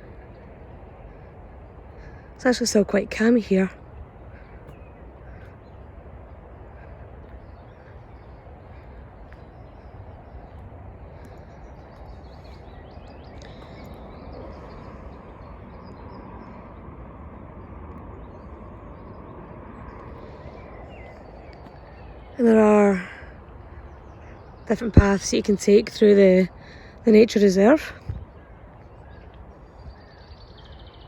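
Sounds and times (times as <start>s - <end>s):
distant motorway traffic rumble: 0.0s - 31.0s
small birds chirping: 0.0s - 31.0s.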